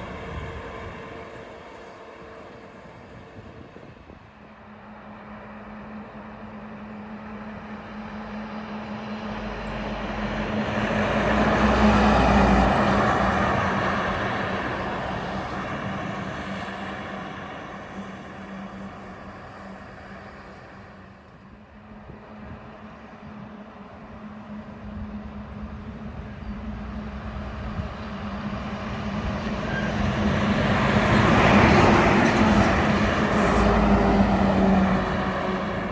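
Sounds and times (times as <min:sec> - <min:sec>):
truck engine passing: 0:30.0 - 0:35.9.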